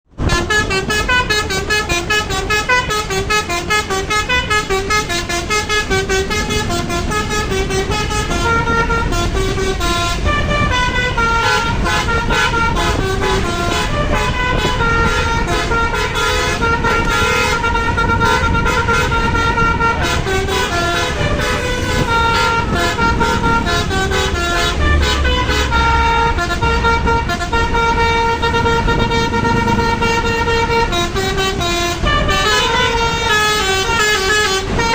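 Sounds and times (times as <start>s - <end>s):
bus engine running: 0.0s - 34.9s
multi-trumpet bus horn melody: 0.1s - 34.9s.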